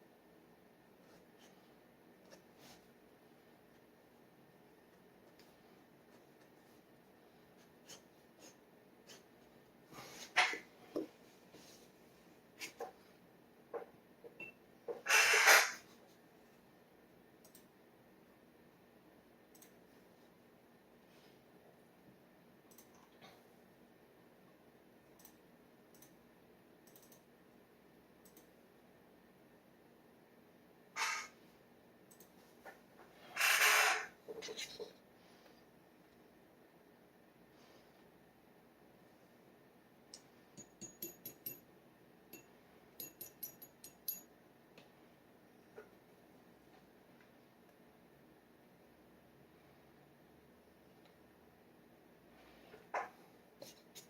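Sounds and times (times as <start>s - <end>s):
low room hiss: 0.0s - 54.0s
pen nib tapping glass bottle: 40.6s - 41.6s, 42.3s - 44.3s.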